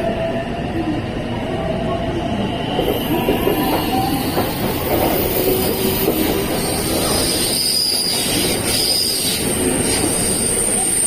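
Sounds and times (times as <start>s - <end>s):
electric train rumbling: 0.0s - 11.0s
high thin squeal of wheels: 6.7s - 11.0s.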